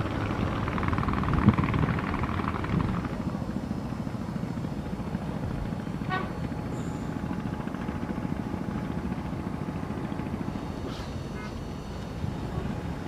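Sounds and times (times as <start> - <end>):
distant traffic rumble: 0.0 - 13.0
vehicle horn toot: 6.0 - 6.4.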